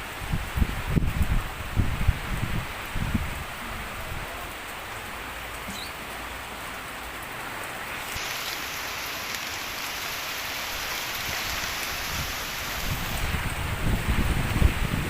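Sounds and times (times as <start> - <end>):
heavy rain in strong wind: 0.0 - 15.0.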